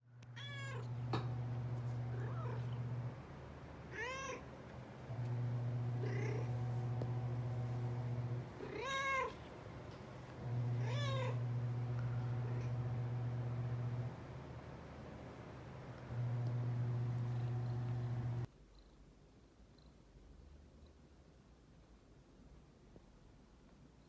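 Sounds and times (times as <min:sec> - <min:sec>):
steady low hum: 0:00.0 - 0:21.0
cat meowing: 0:00.4 - 0:01.0, 0:03.9 - 0:04.5, 0:08.6 - 0:09.4, 0:10.8 - 0:11.4.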